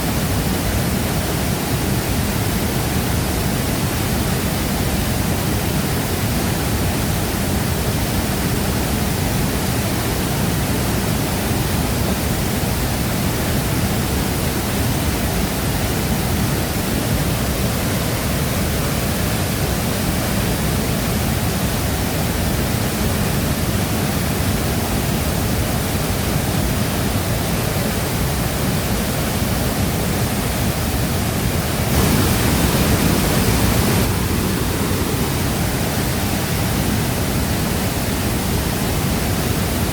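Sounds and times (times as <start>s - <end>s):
water pouring over waterfall: 31.6s - 37.0s.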